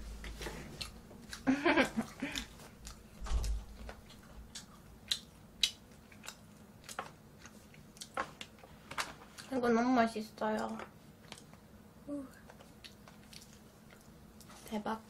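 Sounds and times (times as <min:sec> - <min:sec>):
person chewing food: 0:00.1 - 0:09.5, 0:12.4 - 0:14.6.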